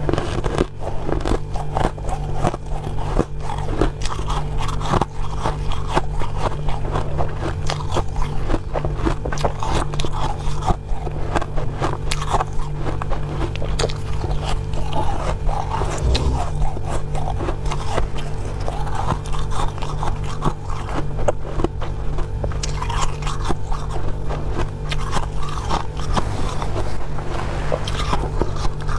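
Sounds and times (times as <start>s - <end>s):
chewing frost crunching: 0.0s - 27.0s
steady low hum: 14.2s - 19.8s, 23.6s - 28.9s.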